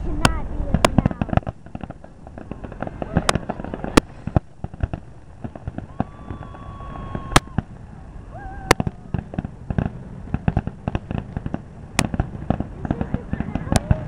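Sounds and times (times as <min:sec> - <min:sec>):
fireworks crackling and popping: 0:00.0 - 0:14.0
loud firework bangs: 0:00.0 - 0:14.0
steady whistling tone: 0:05.8 - 0:09.1.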